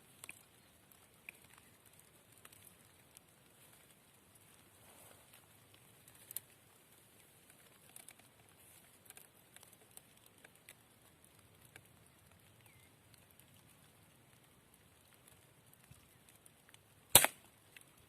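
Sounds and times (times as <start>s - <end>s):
faint clicks and ticks: 0.0s - 18.0s
faint bird chirp: 12.0s - 13.0s.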